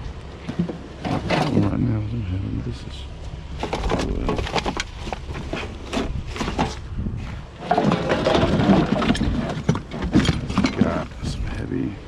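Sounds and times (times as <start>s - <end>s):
rummaging through trash: 0.4s - 1.8s, 3.5s - 11.3s.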